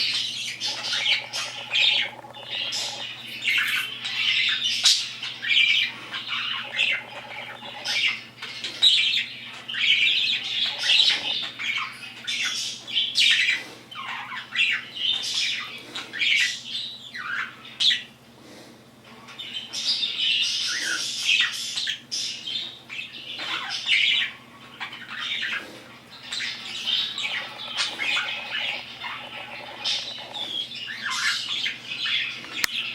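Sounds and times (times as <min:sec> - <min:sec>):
bird squawking and chirping: 0:00.4 - 0:04.0, 0:05.5 - 0:08.2, 0:26.2 - 0:31.7.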